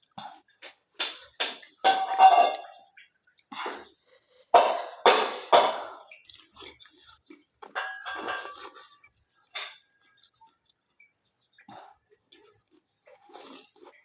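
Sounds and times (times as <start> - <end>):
cutlery clinking against a dish: 1.0 - 2.9, 4.6 - 6.0, 7.6 - 9.9.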